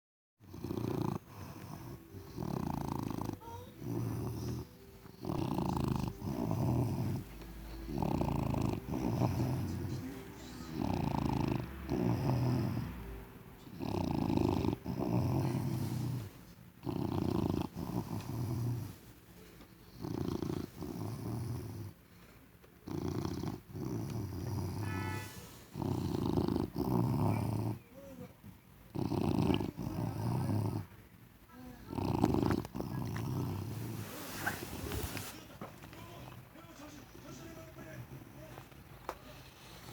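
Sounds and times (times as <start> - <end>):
dog snoring loudly: 0.4 - 19.0, 19.9 - 22.0, 22.8 - 27.8, 28.9 - 30.9, 31.8 - 35.3.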